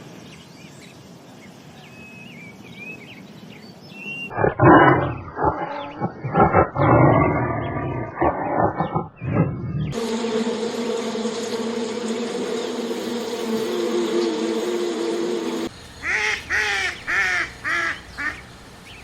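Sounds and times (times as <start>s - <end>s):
birds chirping quietly: 0.0s - 10.3s, 11.0s - 19.0s
big cat growling and roaring: 4.3s - 10.1s.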